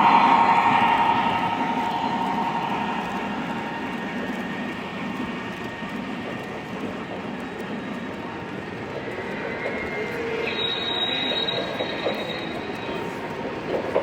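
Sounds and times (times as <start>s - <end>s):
high wheel squeal: 0.0s - 4.7s, 10.3s - 13.2s.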